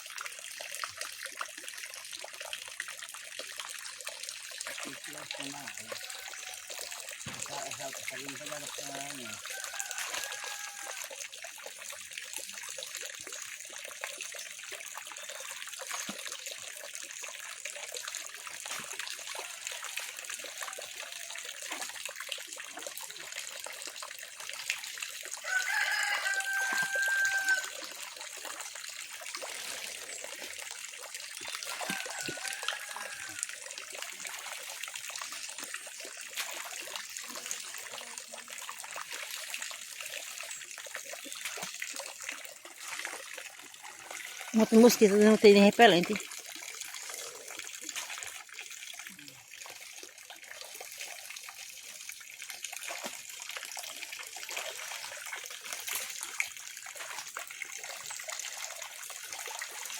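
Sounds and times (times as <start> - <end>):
water trickling: 0.0 - 59.9
rooster crowing: 5.9 - 6.8, 9.4 - 11.1, 25.4 - 27.8, 31.8 - 33.5
distant roosters crowing: 9.4 - 11.1, 25.4 - 27.8, 31.8 - 33.5.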